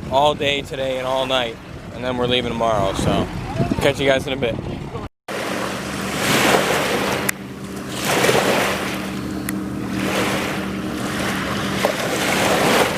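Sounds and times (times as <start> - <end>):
river water washing on shore: 5.3 - 12.9.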